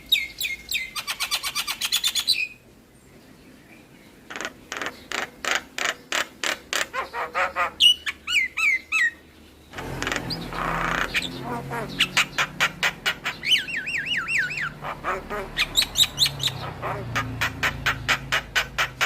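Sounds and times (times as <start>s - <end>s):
bird singing harsh clicks: 4.3s - 6.9s, 17.4s - 19.0s
bird rasping notes: 4.3s - 19.0s.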